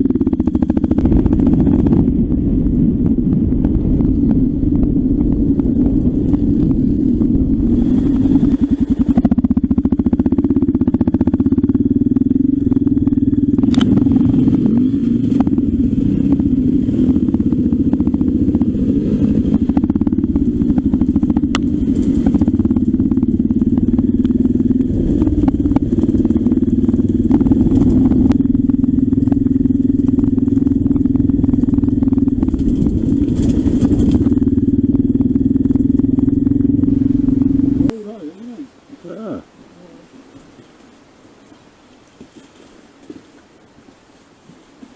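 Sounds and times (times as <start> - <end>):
motorcycle engine running: 0.0 - 39.5.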